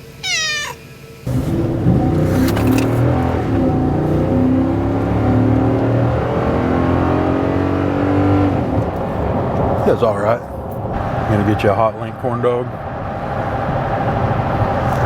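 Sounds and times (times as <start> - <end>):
cat meowing: 0.0 - 0.9
vehicle engine accelerating: 1.2 - 15.0.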